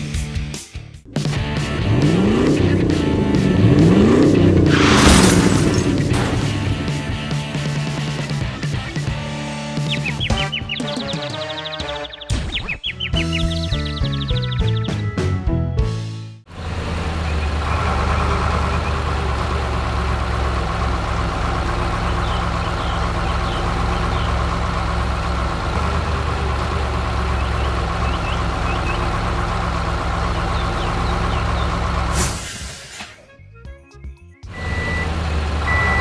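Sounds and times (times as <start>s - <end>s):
heavy vehicle engine rumble: 1.1s - 8.6s, 16.5s - 33.3s, 34.5s - 36.0s.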